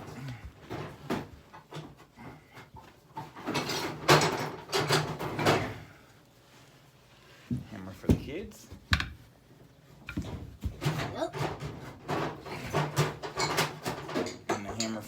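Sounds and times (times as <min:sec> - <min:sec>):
hard objects knocking and clattering: 0:00.0 - 0:05.8, 0:10.0 - 0:15.0.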